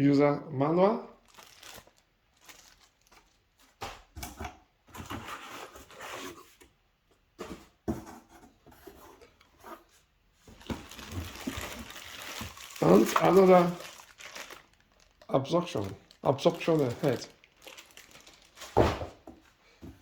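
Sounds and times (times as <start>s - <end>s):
packaging rustling and crinkling: 1.2s - 3.8s, 10.5s - 19.4s.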